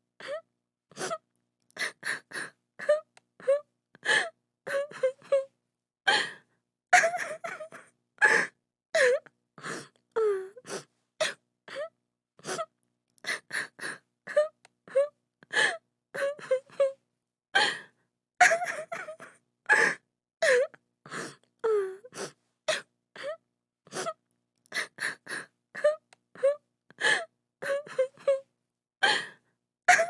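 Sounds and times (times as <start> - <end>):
woman crying: 7.0 - 7.8, 18.4 - 20.6.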